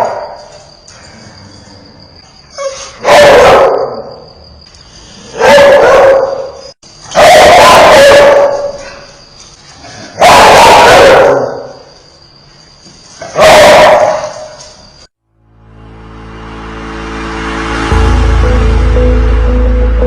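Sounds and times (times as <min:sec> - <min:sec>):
dog barking fiercely: 0:02.6 - 0:04.1, 0:05.4 - 0:08.8, 0:10.2 - 0:11.8, 0:13.2 - 0:14.6.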